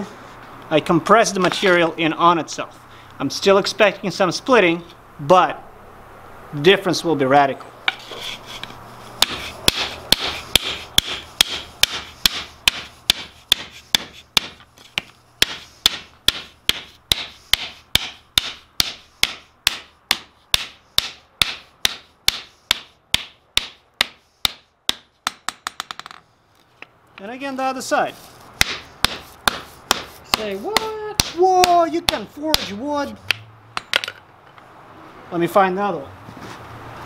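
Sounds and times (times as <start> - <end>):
hammer striking wood on anvil: 9.2 - 26.2, 28.6 - 34.1.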